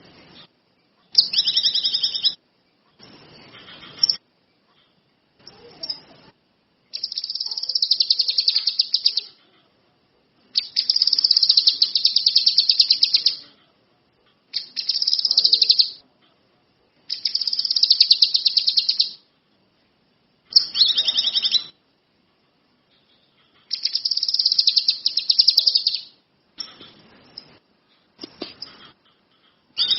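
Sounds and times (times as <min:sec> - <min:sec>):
songbird trilling: 0:01.1 - 0:02.4, 0:06.9 - 0:09.4, 0:10.6 - 0:13.4, 0:14.6 - 0:16.0, 0:17.1 - 0:19.2, 0:20.5 - 0:21.8, 0:23.6 - 0:26.2.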